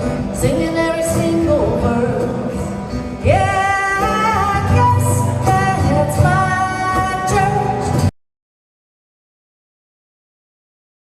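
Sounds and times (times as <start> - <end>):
guitar accompaniment: 0.0 - 8.1
person singing: 0.0 - 8.1.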